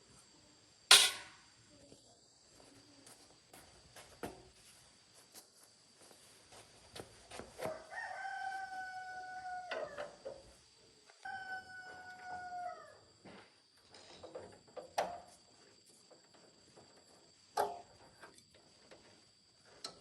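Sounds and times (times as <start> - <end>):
rooster crowing: 7.6 - 10.2, 11.2 - 13.1.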